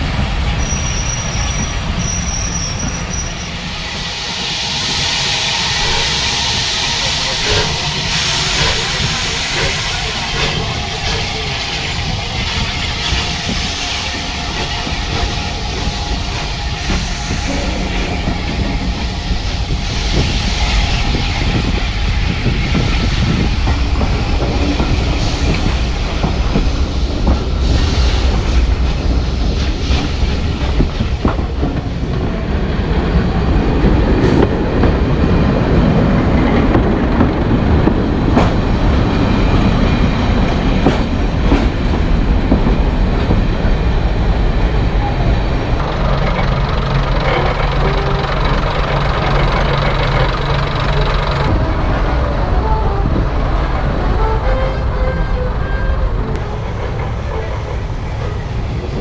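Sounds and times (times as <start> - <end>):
diesel train engine rumbling: 0.0 - 59.0
steam train pulling out: 0.0 - 59.0
train wheels clicking over rail joints: 4.3 - 32.4, 33.1 - 44.6, 45.3 - 51.6.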